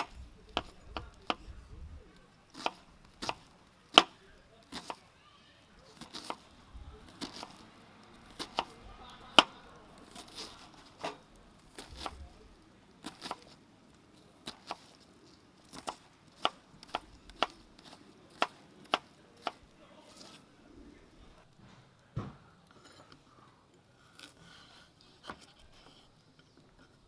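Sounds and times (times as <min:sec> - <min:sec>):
knife chopping on cutting board: 0:02.6 - 0:05.0, 0:06.0 - 0:06.4, 0:07.1 - 0:07.6, 0:08.2 - 0:11.2, 0:13.0 - 0:13.6, 0:14.5 - 0:15.0, 0:15.7 - 0:19.6.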